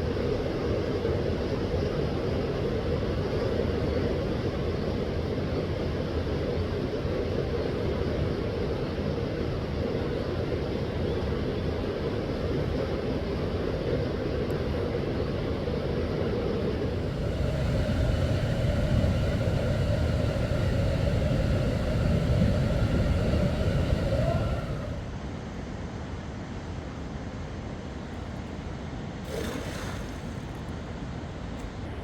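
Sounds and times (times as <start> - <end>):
motor whine and rumble: 0.0 - 25.3
steady rushing noise: 16.7 - 25.2.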